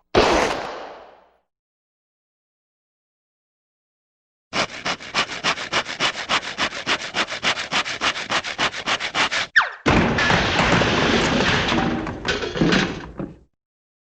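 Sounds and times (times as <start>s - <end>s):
scratchy rubbing strokes: 4.6s - 9.5s.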